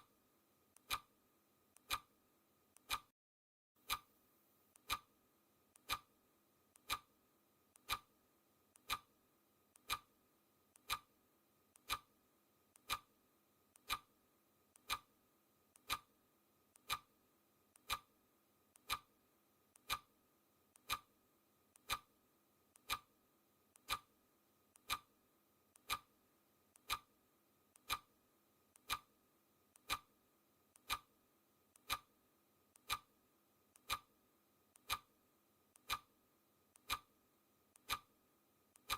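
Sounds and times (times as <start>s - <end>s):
clock ticking: 0.8s - 1.1s, 1.8s - 2.1s, 2.7s - 3.1s, 3.8s - 4.1s, 4.8s - 5.1s, 5.8s - 6.1s, 6.8s - 7.1s, 7.8s - 8.1s, 8.8s - 9.1s, 9.8s - 10.1s, 10.8s - 11.2s, 11.8s - 12.1s, 12.8s - 13.1s, 13.8s - 14.1s, 14.8s - 15.1s, 15.8s - 16.1s, 16.8s - 17.1s, 17.8s - 18.1s, 18.8s - 19.2s, 19.8s - 20.1s, 20.8s - 21.2s, 21.8s - 22.1s, 22.8s - 23.2s, 23.8s - 24.2s, 24.8s - 25.2s, 25.8s - 26.2s, 26.8s - 27.2s, 27.8s - 28.2s, 28.8s - 29.2s, 29.8s - 30.2s, 30.8s - 31.2s, 31.8s - 32.2s, 32.8s - 35.2s, 35.8s - 36.2s, 36.8s - 37.2s, 37.8s - 38.2s.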